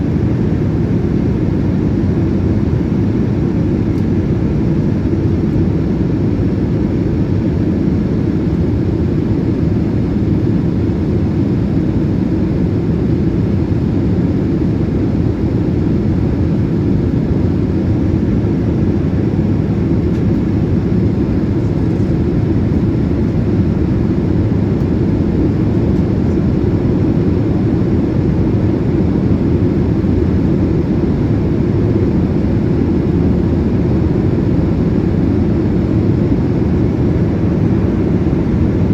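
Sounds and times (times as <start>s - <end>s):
airliner cabin engine and airflow noise: 0.0s - 38.9s.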